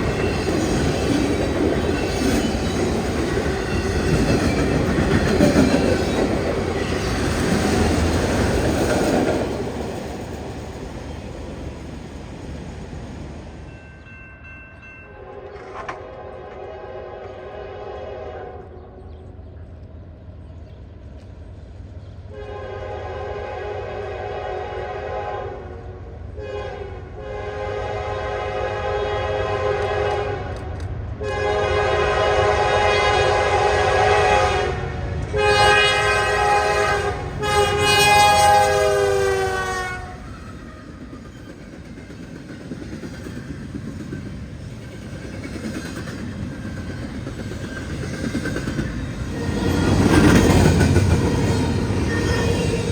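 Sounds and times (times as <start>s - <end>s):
train rumble: 0.0s - 52.9s
train air horn blasts: 15.2s - 18.8s, 22.3s - 40.3s.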